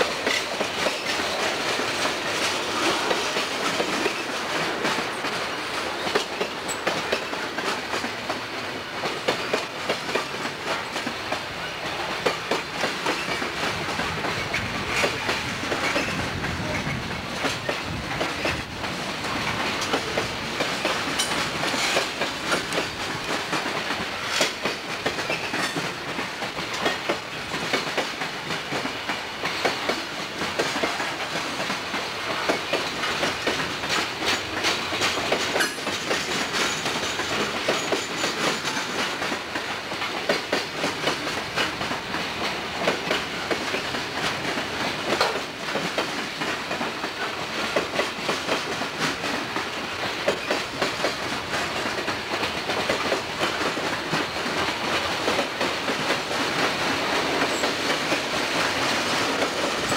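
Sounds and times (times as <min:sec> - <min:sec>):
freight train rolling by: 0:00.0 - 0:59.9.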